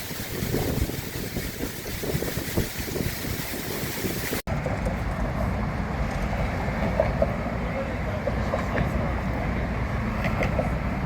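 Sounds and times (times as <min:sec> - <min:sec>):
wind buffeting microphone: 0:00.0 - 0:04.4
low rumble of outdoor ambience: 0:04.5 - 0:11.0.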